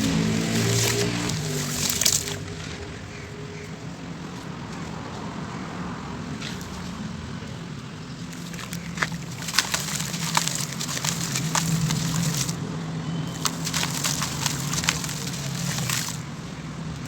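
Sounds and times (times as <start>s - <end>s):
sand cement crumbling in water: 0.0s - 2.5s, 8.3s - 12.6s, 13.3s - 16.3s
sharp crackles: 0.0s - 3.2s, 8.3s - 12.6s, 13.3s - 16.3s.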